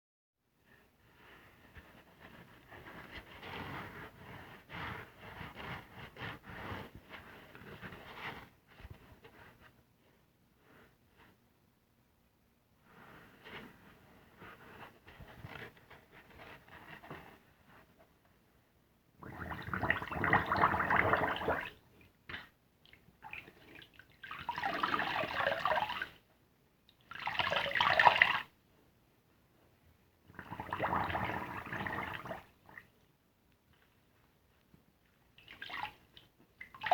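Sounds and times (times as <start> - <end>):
soapy sponge squishing: 19.2 - 26.2, 30.3 - 33.0, 35.3 - 36.9.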